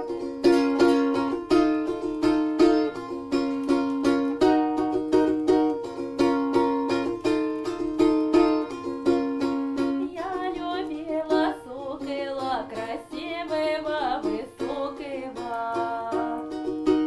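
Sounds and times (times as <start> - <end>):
plucked string instrument folk tune: 0.0 - 17.0
person singing verses: 10.1 - 16.6.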